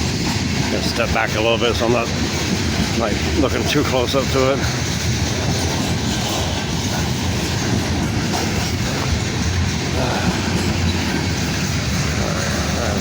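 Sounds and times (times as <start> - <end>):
steel wheels clattering on rails: 0.0 - 13.0.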